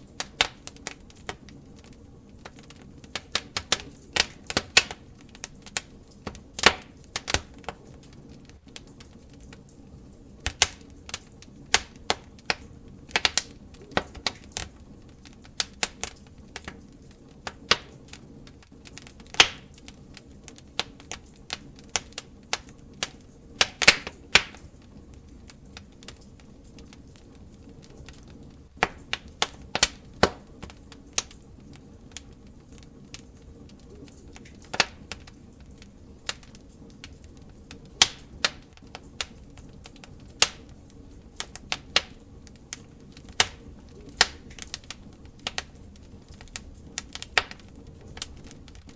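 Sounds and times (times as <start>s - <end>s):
low steady hiss: 0.0s - 48.9s
wood fire crackling: 0.0s - 48.9s.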